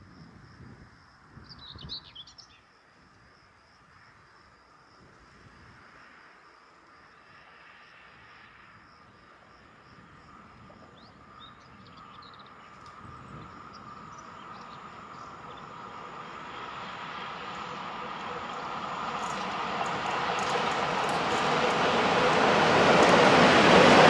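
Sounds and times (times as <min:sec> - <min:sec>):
high insect trill: 0:00.0 - 0:24.0
freight train rolling: 0:09.2 - 0:24.0.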